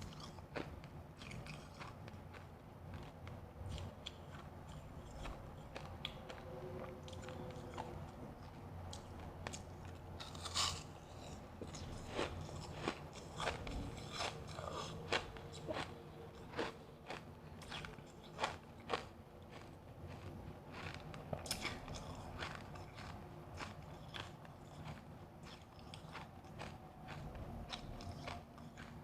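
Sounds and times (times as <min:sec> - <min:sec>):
ice being bitten and chewed: 0:00.0 - 0:29.0.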